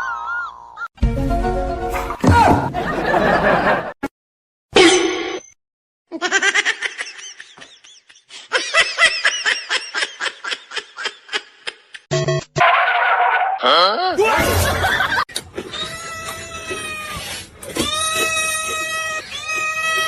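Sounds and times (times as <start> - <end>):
person laughing rhythmically: 6.1 - 12.1.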